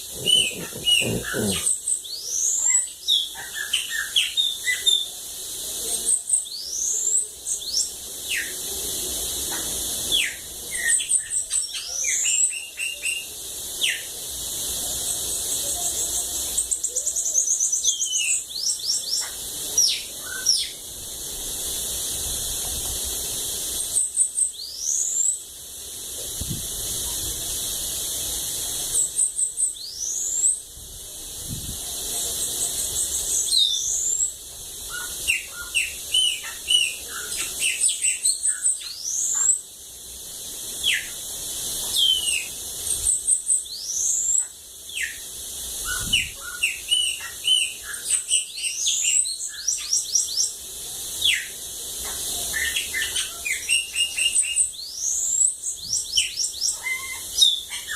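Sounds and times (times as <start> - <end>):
bird singing trills and whistles: 0.0 - 5.2, 6.0 - 8.7, 9.3 - 14.1, 15.3 - 20.8, 23.8 - 25.4, 28.9 - 30.6, 32.4 - 39.6, 40.8 - 41.2, 41.9 - 50.6, 51.2 - 57.9
steady high hiss: 0.0 - 57.9.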